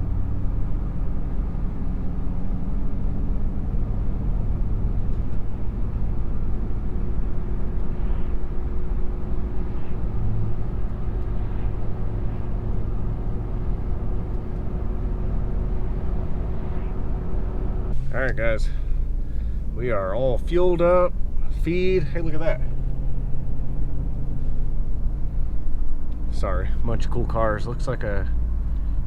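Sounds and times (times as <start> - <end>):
car engine and road noise: 0.0 - 29.0.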